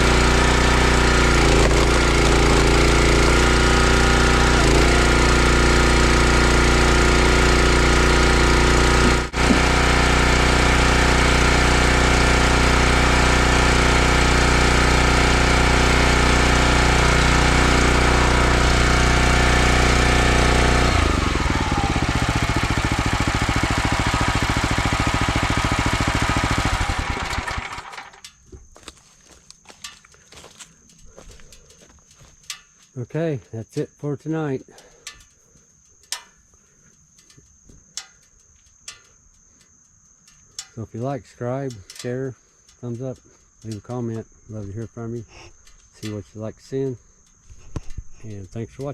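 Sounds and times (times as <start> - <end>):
small gas engine running: 0.0 - 28.3.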